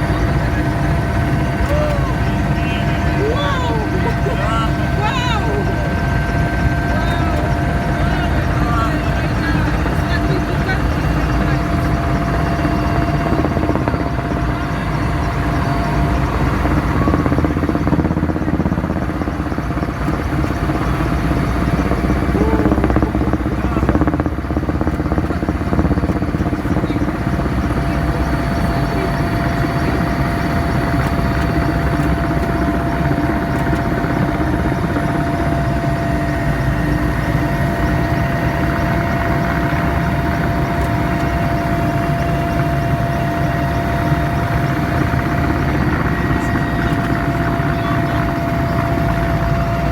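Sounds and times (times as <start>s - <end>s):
helicopter engine and rotor drone: 0.0s - 49.9s.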